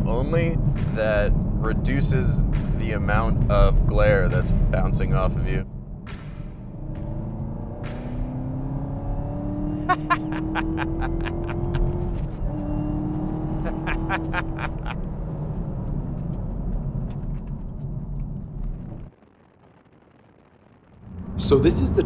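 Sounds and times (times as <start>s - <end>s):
car engine accelerating: 0.0s - 22.0s
person laughing: 9.8s - 12.1s, 13.6s - 15.0s.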